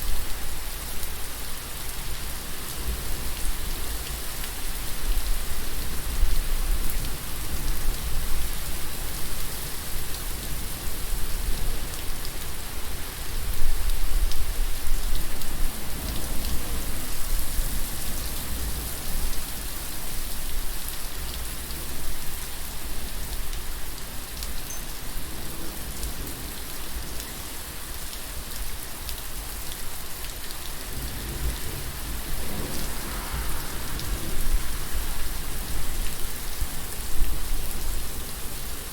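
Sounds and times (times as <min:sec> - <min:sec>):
rain falling: 0:00.0 - 0:38.9
low rumble: 0:32.4 - 0:35.9.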